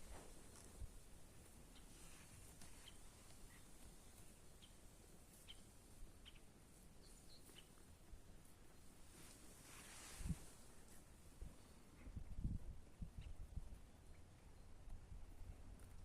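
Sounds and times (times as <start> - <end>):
birds chirping: 2.6 - 7.8.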